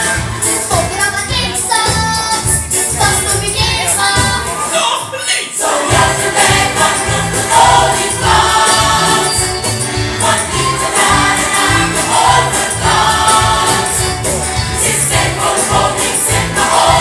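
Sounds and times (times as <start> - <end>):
choir singing over a beat: 0.0 - 0.8, 2.5 - 17.0.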